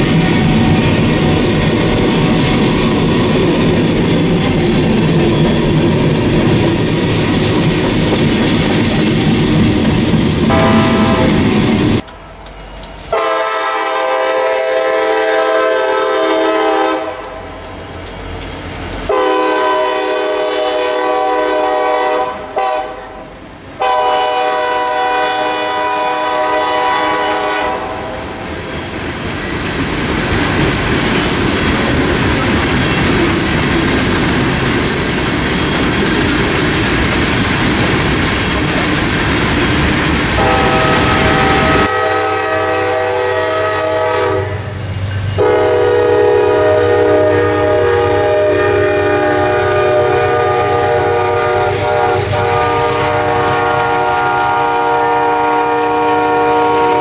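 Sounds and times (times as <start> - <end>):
wheels clattering over rail joints: 0.0 - 10.5, 28.4 - 41.9
train rumbling past: 0.0 - 57.0
locomotive horn blasts: 10.5 - 12.2, 13.1 - 17.6, 19.1 - 23.2, 23.8 - 28.3, 40.4 - 44.8, 45.4 - 57.0.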